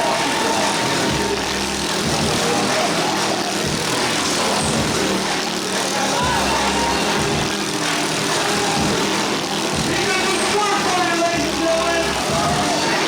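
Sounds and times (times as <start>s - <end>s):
exhibition hall noise: 0.0s - 13.0s
motorcycle engine droning: 0.0s - 13.0s.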